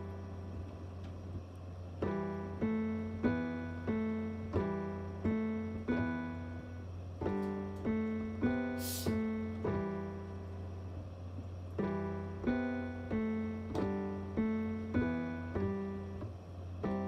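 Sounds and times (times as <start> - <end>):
piano chords over bass note: 0.0 - 17.0
short hiss: 8.8 - 9.2.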